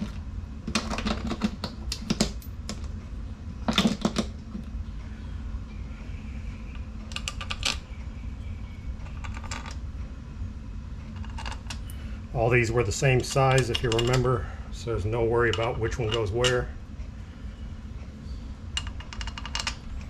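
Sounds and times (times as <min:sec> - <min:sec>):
metallic clicks and rattles of bolts: 0:12.9 - 0:14.4, 0:18.8 - 0:20.0.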